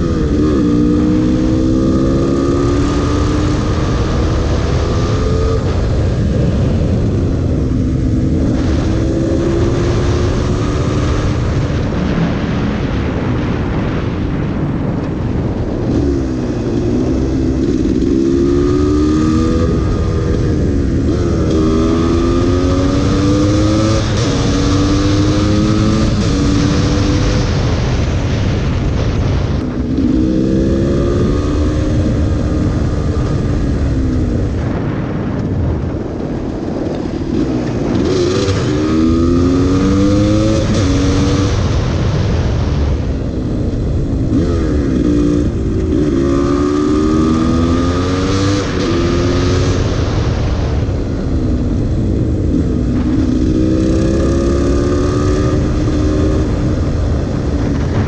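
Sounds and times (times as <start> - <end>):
motorcycle engine accelerating: 0.0 - 58.0
wind rush on microphone: 0.0 - 58.0.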